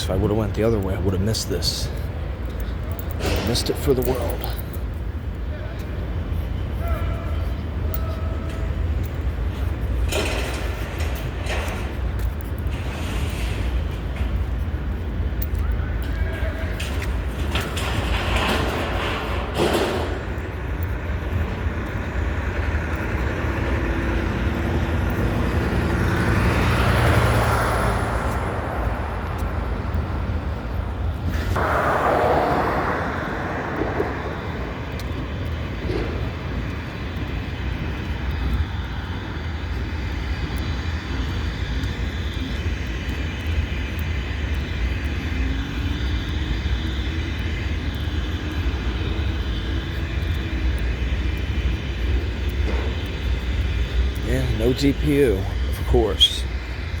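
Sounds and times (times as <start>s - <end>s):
train wheel noise: 0.0s - 57.0s
freight train rumbling past: 16.4s - 37.7s, 47.5s - 57.0s.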